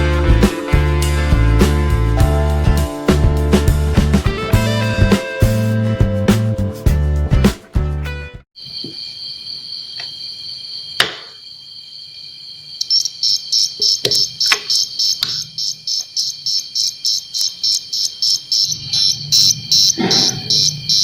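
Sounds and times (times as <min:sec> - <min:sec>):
electronic pulsed chirping: 0:12.8 - 0:21.0.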